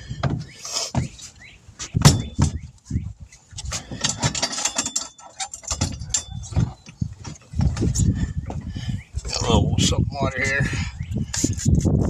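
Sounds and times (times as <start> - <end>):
tools knocking and clanking on wheel: 1.8 - 2.6, 3.7 - 8.7.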